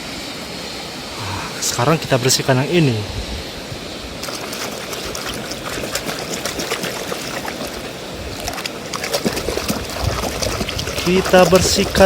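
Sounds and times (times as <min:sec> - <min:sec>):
running water splashing: 0:00.0 - 0:12.0
water dripping: 0:04.2 - 0:12.0.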